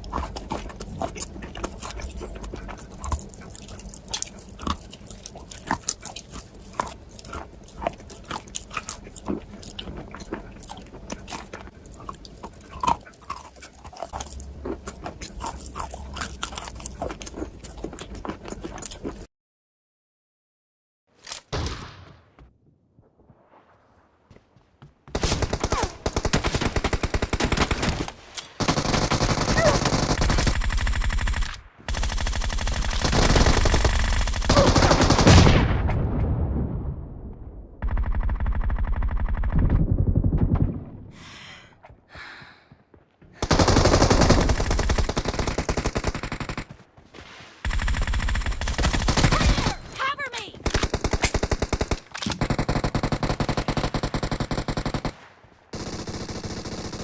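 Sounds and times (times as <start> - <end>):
automatic gunfire bursts: 25.2 - 35.5, 55.8 - 57.0.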